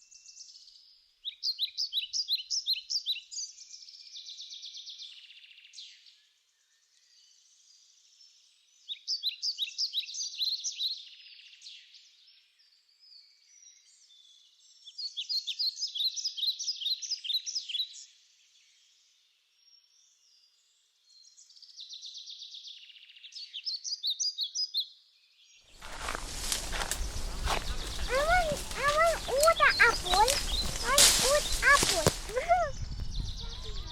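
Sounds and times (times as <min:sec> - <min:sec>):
songbird singing: 0:21.1 - 0:33.9.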